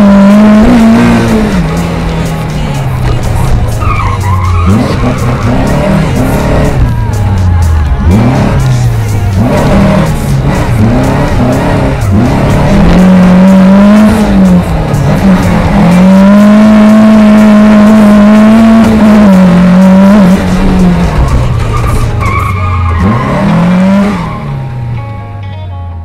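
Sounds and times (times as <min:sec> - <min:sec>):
car engine at high revs: 0:00.0 - 0:25.3
tyres squealing: 0:02.7 - 0:10.0, 0:15.9 - 0:25.0.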